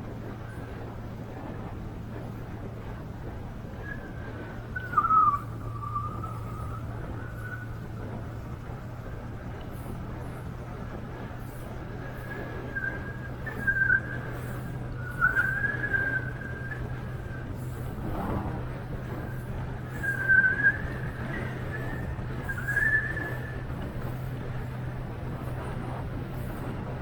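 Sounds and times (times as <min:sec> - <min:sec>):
boat engine running: 0:00.0 - 0:27.0
wavering high whistle: 0:03.8 - 0:07.9, 0:12.2 - 0:17.8, 0:18.4 - 0:23.8.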